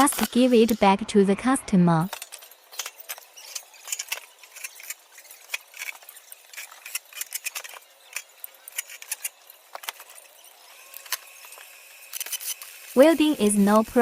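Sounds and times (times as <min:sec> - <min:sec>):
small metallic clicks and clinks: 0:02.1 - 0:12.8.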